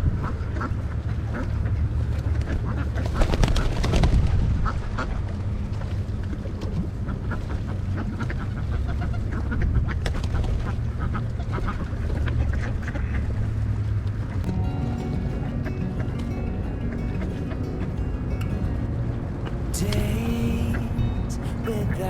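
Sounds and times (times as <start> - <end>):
steady low rumble: 4.0 - 22.0
ducks quacking: 7.1 - 13.4.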